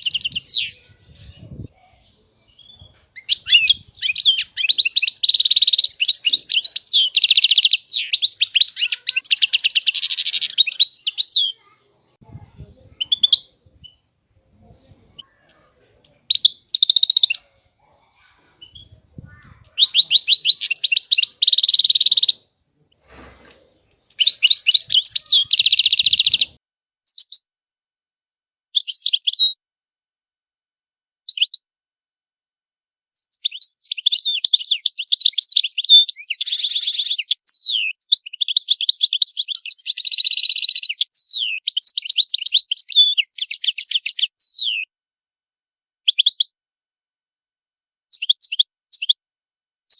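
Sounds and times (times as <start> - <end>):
goldfinch singing: 0.0 - 11.8, 12.9 - 14.0, 15.2 - 17.6, 18.5 - 22.4, 23.5 - 27.4, 33.2 - 44.9, 48.1 - 49.2.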